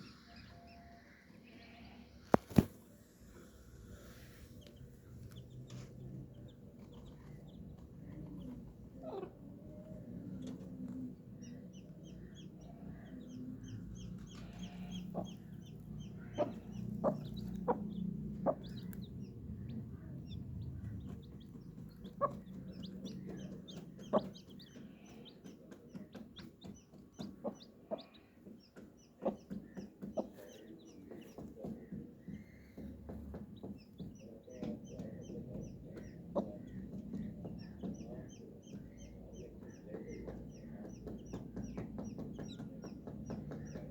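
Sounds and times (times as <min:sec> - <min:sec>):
chicks peeping: 0:00.0 - 0:43.9
hen clucking: 0:04.6 - 0:43.9
sharp taps: 0:11.8 - 0:43.9.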